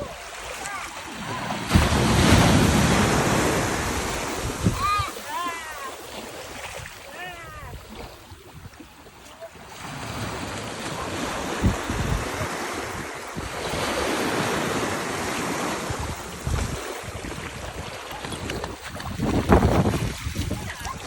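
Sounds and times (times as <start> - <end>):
surf washing onto beach: 0.0 - 21.0
wind buffeting microphone: 1.2 - 5.2, 10.2 - 14.8, 15.6 - 21.0.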